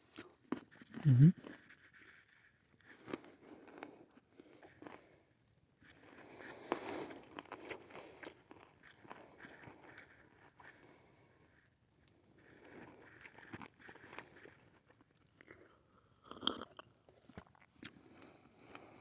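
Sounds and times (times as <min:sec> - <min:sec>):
chewing and crunching: 0:00.0 - 0:19.0.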